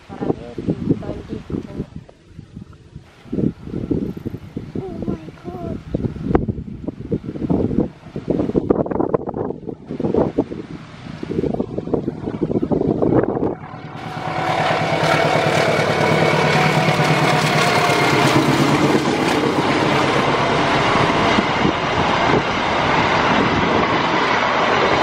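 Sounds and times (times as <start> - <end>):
diesel locomotive engine: 3.1 - 25.0
train wheels rumbling on rails: 13.4 - 25.0.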